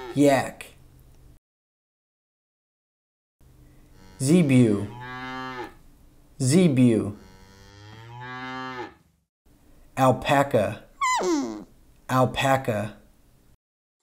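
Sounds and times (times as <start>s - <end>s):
cattle mooing: 3.9s - 5.8s, 7.1s - 9.0s.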